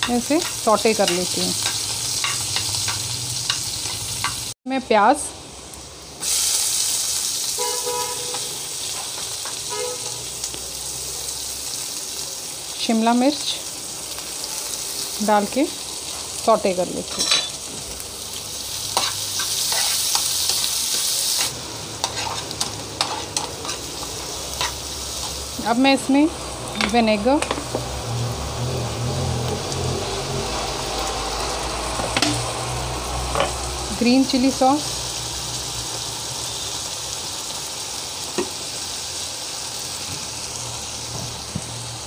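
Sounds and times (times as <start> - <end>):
vegetables sizzling in hot oil: 0.0 - 42.0.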